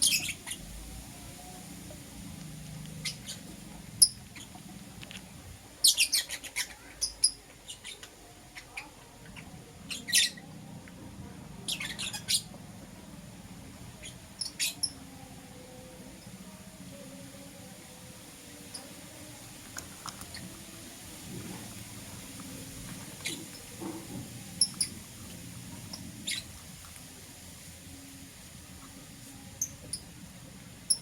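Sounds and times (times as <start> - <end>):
lovebirds chirping: 0.0 - 0.7, 5.8 - 10.6, 11.6 - 12.5, 14.0 - 15.0, 24.4 - 25.1, 25.7 - 26.6.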